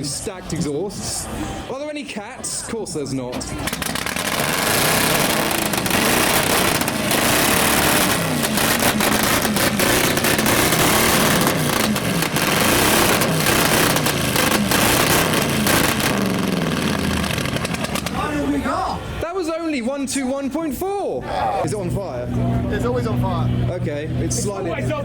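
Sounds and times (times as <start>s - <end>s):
exhaust pops and bangs: 3.4s - 18.4s
car engine revving: 3.4s - 18.6s.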